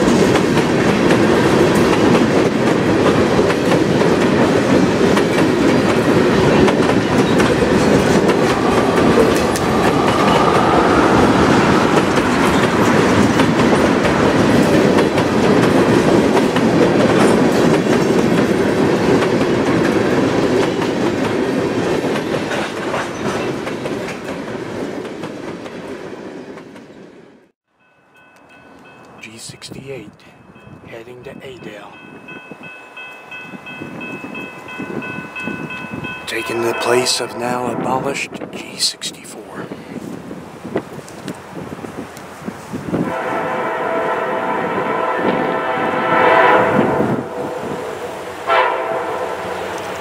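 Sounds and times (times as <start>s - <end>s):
wheels clacking over rail joints: 0.0s - 10.7s
freight train rumbling past: 0.0s - 50.0s.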